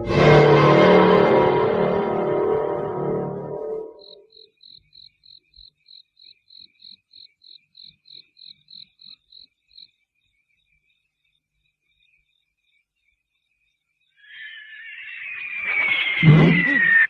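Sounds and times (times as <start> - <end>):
cricket chirping: 4.0 - 16.9.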